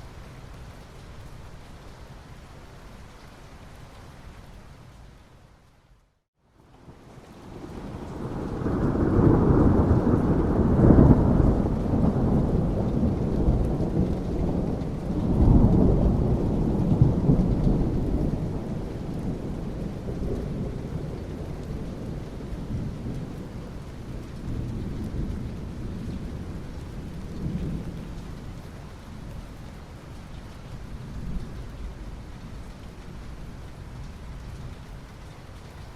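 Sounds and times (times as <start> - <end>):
steady rain: 0.0 - 35.9
thunder rumbling: 6.8 - 28.6.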